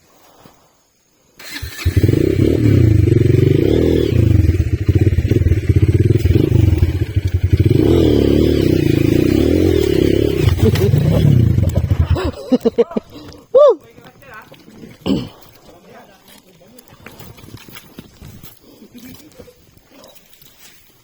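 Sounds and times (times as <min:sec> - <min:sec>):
motorcycle engine revving: 0:01.4 - 0:12.4.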